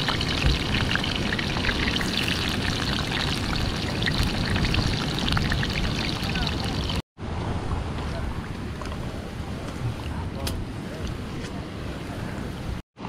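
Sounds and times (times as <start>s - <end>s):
breadfruit sizzling in hot oil: 0.0s - 7.0s
oil crackling and popping: 0.0s - 7.0s.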